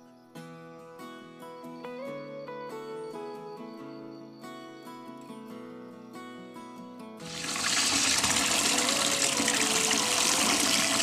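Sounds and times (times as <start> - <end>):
light plucked background music: 0.0 - 11.0
water pouring into plastic bowl: 7.2 - 11.0.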